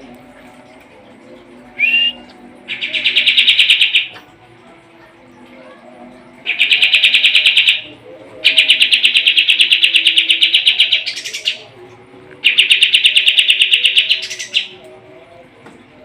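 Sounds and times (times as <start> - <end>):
songbird trilling: 1.8 - 4.2, 6.5 - 7.9, 12.4 - 14.8.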